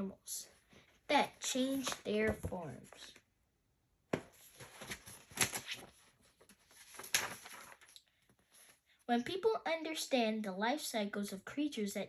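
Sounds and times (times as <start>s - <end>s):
book page turning rustle: 4.3s - 8.8s.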